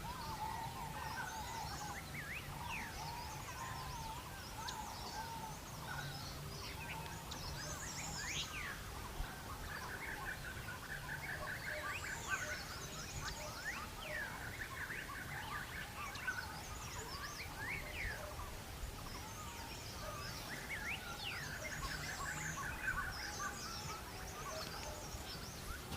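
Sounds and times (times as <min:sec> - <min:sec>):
birds whistling: 0:09.6 - 0:25.9.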